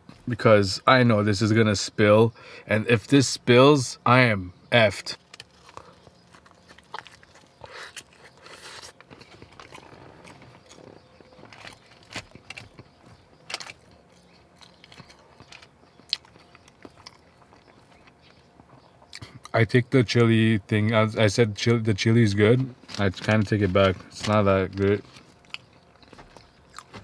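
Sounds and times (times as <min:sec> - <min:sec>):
chewing with wet mouth sounds: 0:05.2 - 0:19.6, 0:22.8 - 0:27.0.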